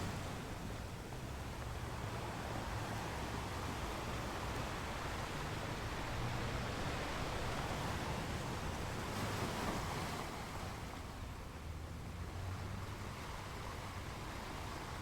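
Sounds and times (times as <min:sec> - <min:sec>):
ocean waves washing on shore: 0:00.0 - 0:11.7.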